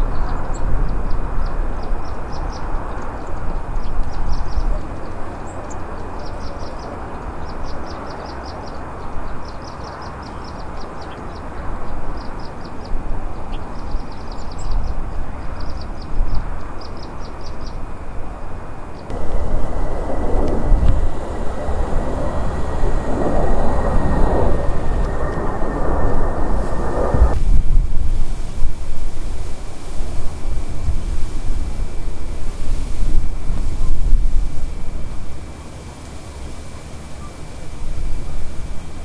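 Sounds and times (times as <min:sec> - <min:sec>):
car road and wind noise: 0:19.1 - 0:29.2.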